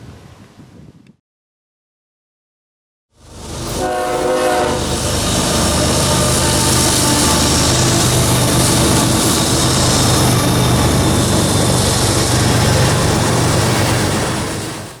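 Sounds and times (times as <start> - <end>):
train cars clattering on rails: 3.6 - 15.0.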